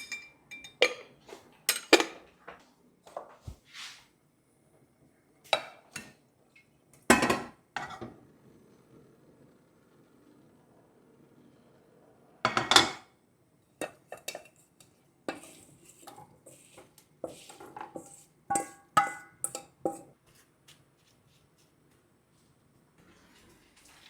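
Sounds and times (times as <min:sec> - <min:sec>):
dishes and utensils clattering: 0:00.0 - 0:02.4, 0:07.1 - 0:08.1, 0:12.5 - 0:13.1, 0:13.8 - 0:20.1.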